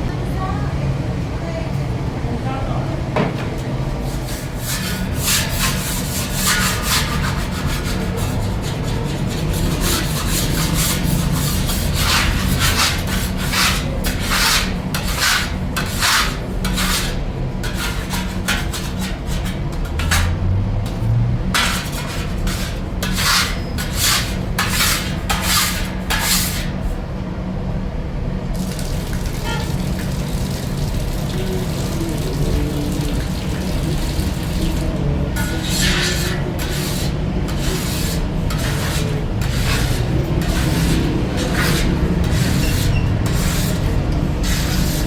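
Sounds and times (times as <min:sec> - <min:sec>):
rhythmic rasping strokes: 0:04.0 - 0:26.6, 0:35.2 - 0:45.0.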